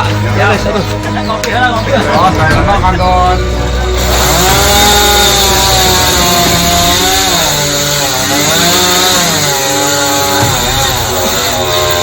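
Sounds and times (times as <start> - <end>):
chainsaw cutting wood: 3.4 - 12.0.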